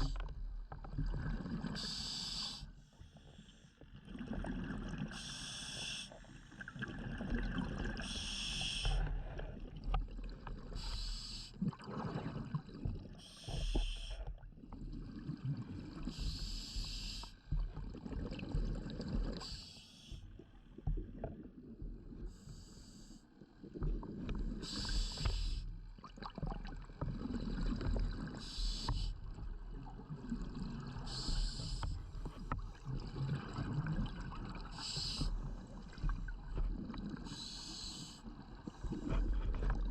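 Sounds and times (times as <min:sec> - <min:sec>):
exhaled bubbles rumbling: 0:00.0 - 0:01.9, 0:04.0 - 0:05.2, 0:06.5 - 0:11.0, 0:11.6 - 0:19.6, 0:20.2 - 0:22.6, 0:23.5 - 0:39.9
regulator inhale hiss: 0:01.8 - 0:03.6, 0:05.1 - 0:06.3, 0:08.0 - 0:09.5, 0:10.8 - 0:11.6, 0:13.2 - 0:14.3, 0:16.1 - 0:17.4, 0:19.3 - 0:20.3, 0:22.3 - 0:23.3, 0:24.6 - 0:25.7, 0:28.3 - 0:29.2, 0:31.0 - 0:32.1, 0:34.6 - 0:35.9, 0:37.2 - 0:39.1.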